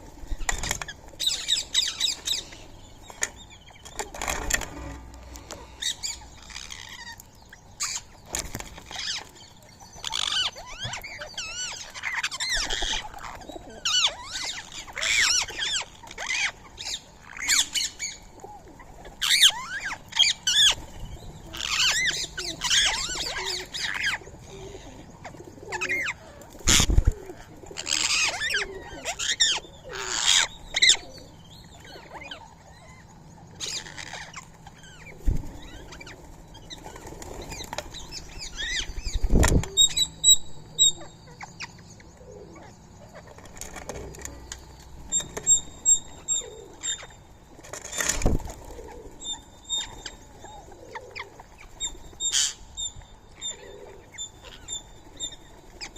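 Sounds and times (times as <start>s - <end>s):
wings flapping: 0.2s - 7.1s, 8.3s - 9.4s, 25.3s - 28.7s, 35.2s - 40.0s, 47.5s - 49.2s
parakeets screeching: 4.2s - 8.2s, 8.8s - 9.3s, 10.0s - 18.3s, 19.0s - 20.9s, 21.5s - 25.0s, 25.6s - 33.0s, 33.6s - 41.8s, 47.9s - 52.6s, 53.4s - 55.9s.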